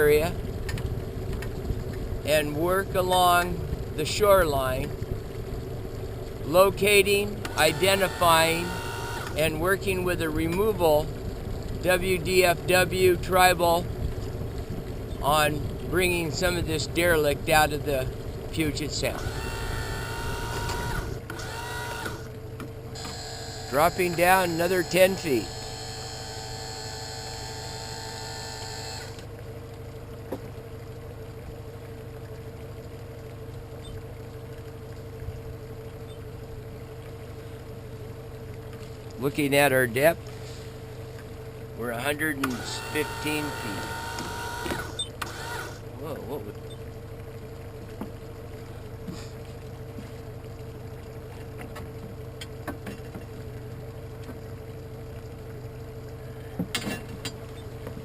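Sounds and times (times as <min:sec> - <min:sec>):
steady whine: 0:00.0 - 0:29.3, 0:38.8 - 0:46.6
boat motor humming: 0:00.0 - 0:58.0
high electric whine: 0:23.0 - 0:29.2, 0:42.5 - 0:45.8.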